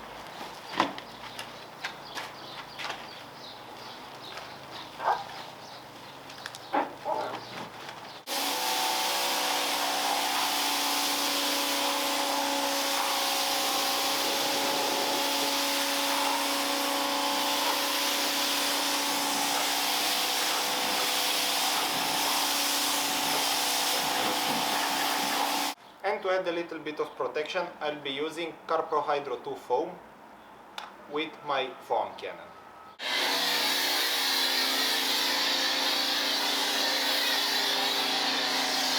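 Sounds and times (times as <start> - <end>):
pressure washer motor hum: 8.3 - 25.8, 33.0 - 38.9
water jet hissing: 8.3 - 25.8, 33.8 - 38.9.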